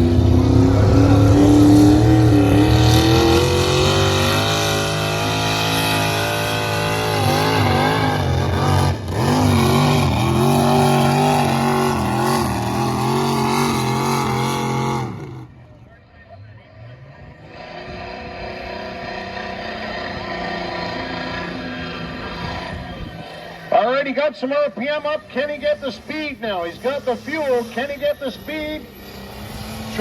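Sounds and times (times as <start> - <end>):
vehicle engine running under load: 25.3 - 30.0.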